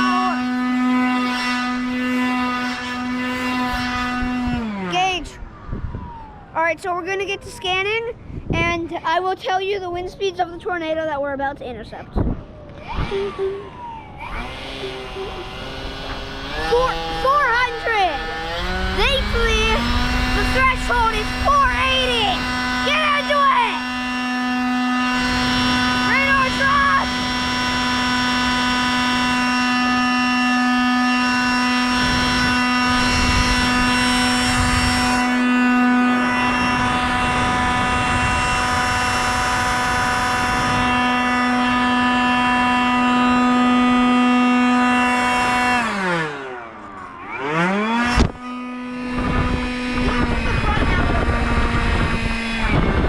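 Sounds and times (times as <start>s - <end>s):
electric blower motor whine: 0.0s - 6.6s, 12.2s - 53.0s.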